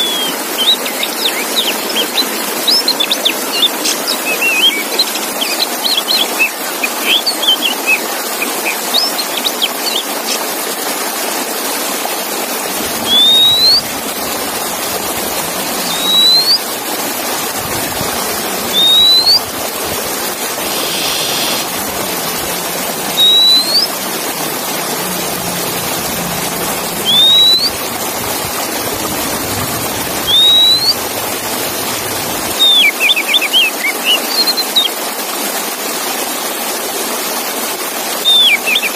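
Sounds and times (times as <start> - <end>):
bird song: 0.0 - 10.4, 13.0 - 29.3, 29.9 - 35.0, 38.3 - 38.9
steady hiss: 12.6 - 32.6.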